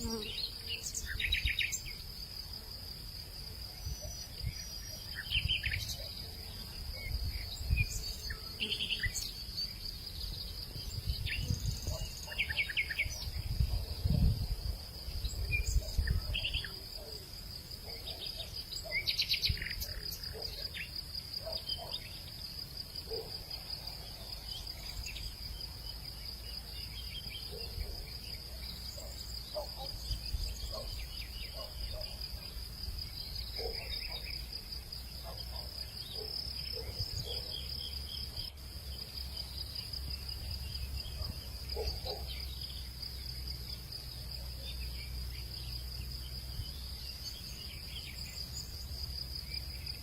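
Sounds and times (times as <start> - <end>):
high insect trill: 0.0 - 50.0
wind rumbling on microphone: 10.8 - 12.1, 13.2 - 16.4.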